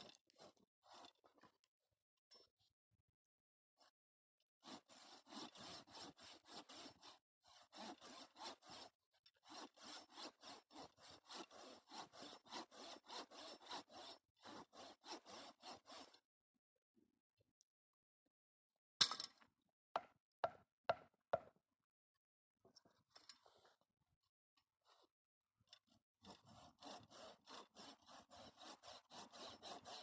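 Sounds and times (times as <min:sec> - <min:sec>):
hand saw cutting wood: 0:00.0 - 0:01.5, 0:04.6 - 0:16.2, 0:25.8 - 0:30.0.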